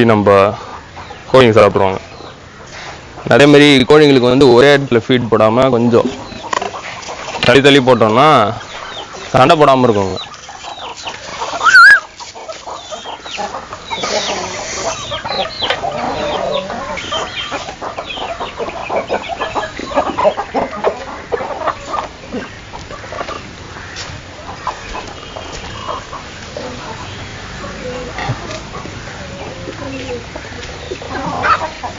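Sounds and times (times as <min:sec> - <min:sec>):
chickens clucking: 0:00.0 - 0:31.9
chicken rising call: 0:11.3 - 0:12.3.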